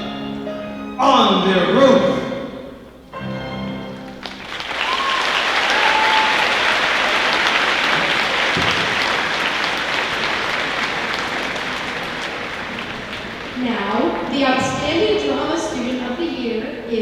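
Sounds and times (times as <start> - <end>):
audience applauding: 3.9 - 15.8.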